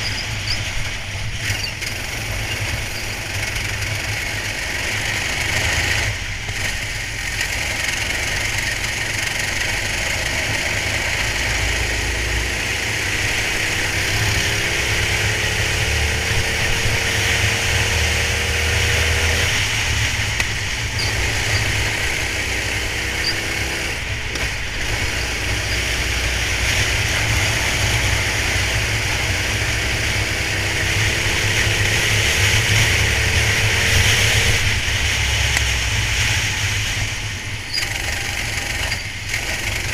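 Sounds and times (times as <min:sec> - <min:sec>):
racing kart engine: 0:00.0 - 0:39.9.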